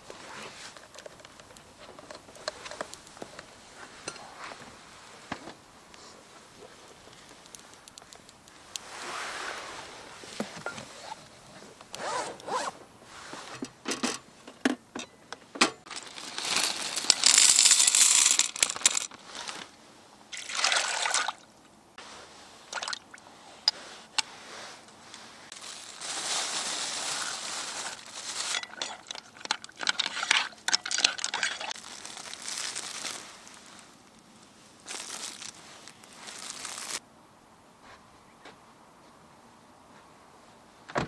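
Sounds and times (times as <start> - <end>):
small clicks and handling knocks: 0.8 - 3.5
liquid pouring: 20.3 - 21.4.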